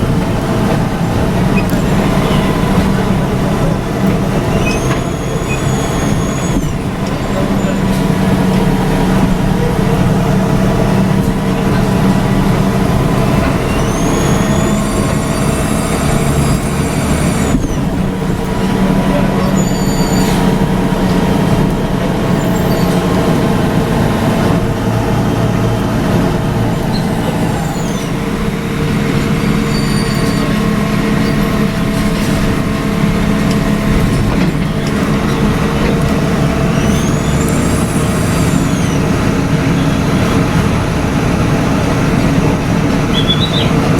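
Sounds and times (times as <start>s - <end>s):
bus diesel engine running: 0.0s - 43.9s
high whistle: 13.6s - 17.8s.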